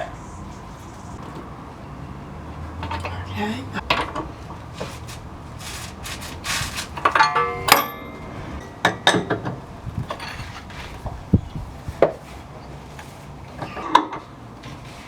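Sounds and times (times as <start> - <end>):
rustling: 4.6 - 7.8
metal tools clanking: 5.8 - 11.0
ringing metal clang: 7.1 - 10.4.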